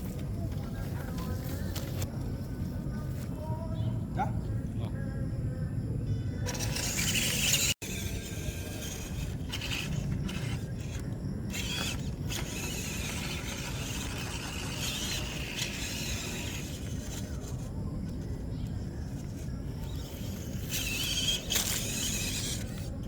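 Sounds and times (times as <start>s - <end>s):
electric motor whining: 6.4s - 23.0s
tyres scraping on track: 6.4s - 23.0s.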